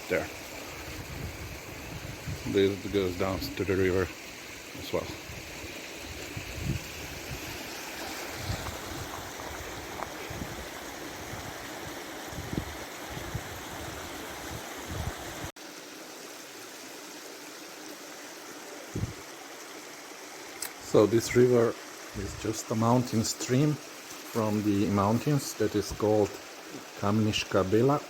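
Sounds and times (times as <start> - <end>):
stream rushing over rocks: 0.0 - 28.0.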